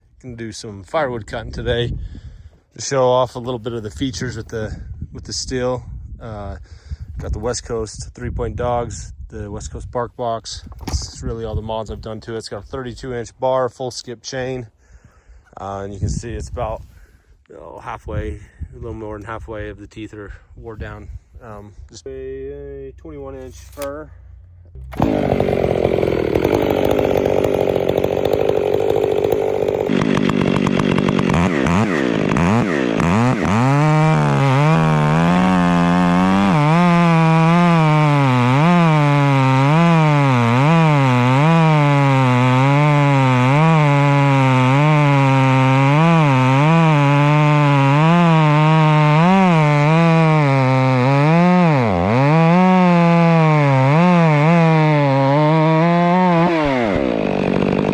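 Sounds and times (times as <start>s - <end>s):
chainsaw cutting log: 24.7s - 57.9s.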